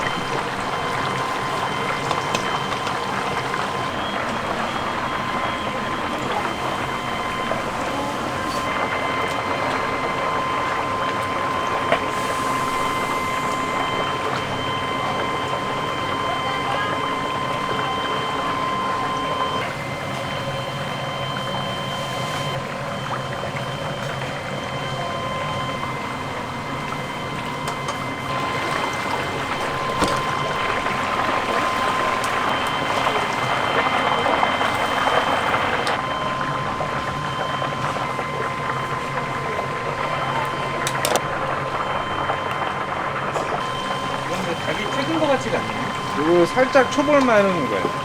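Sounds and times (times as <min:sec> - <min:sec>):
chicken sizzling in hot oil: 0:00.0 - 0:36.0
faint steady whine: 0:00.0 - 0:48.0
thin high tone: 0:43.6 - 0:48.0.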